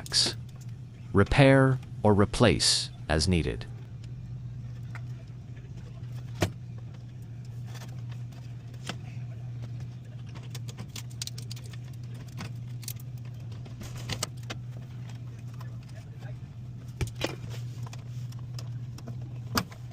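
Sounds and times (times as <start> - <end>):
machinery humming: 0.0 - 19.9.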